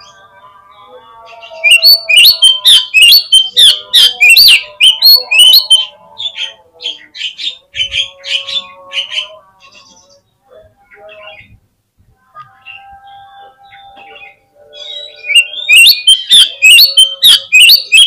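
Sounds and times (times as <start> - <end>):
bird singing sharp notes: 1.5 - 5.9, 12.6 - 18.0.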